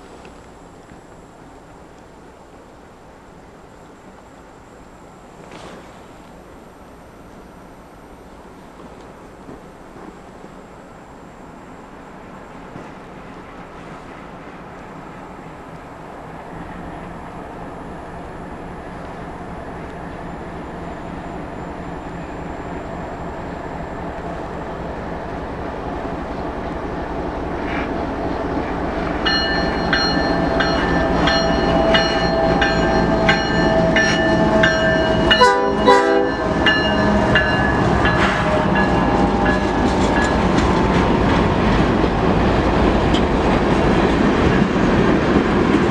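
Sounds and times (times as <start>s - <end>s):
freight train passing: 0.0s - 45.9s
train wheels clattering: 12.5s - 45.9s
locomotive horn: 15.3s - 43.2s.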